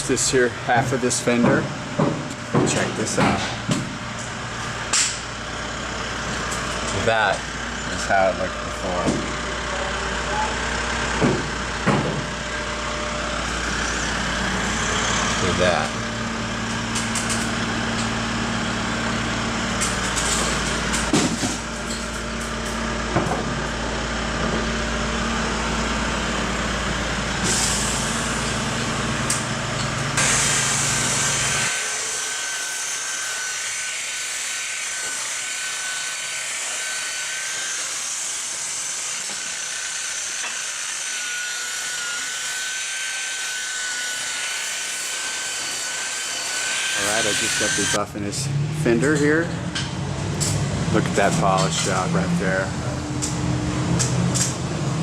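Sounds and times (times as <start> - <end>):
rotary polisher whining: 2.2 - 48.2
knocks: 11.2 - 12.3.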